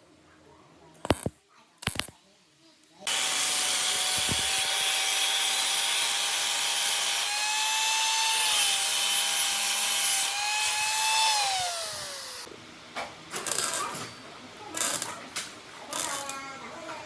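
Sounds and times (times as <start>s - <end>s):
angle grinder grinding metal: 3.1s - 12.5s.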